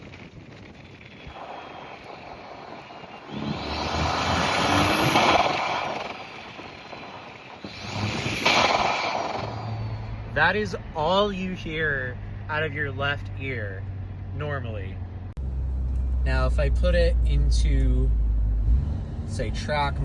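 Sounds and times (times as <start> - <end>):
car turbo whooshing whine: 0.6 - 11.6.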